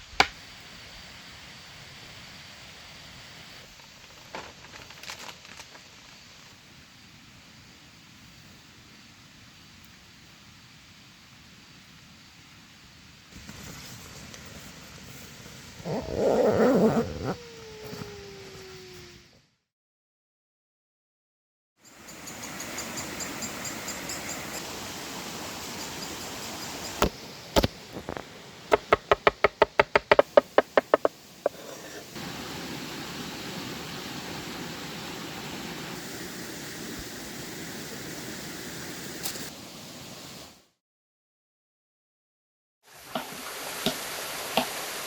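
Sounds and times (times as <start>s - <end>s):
outdoor background hiss: 0.0s - 19.5s, 21.8s - 40.8s, 42.9s - 45.0s
fast run of knocks: 28.7s - 31.1s
sharp knocks: 28.7s - 31.1s.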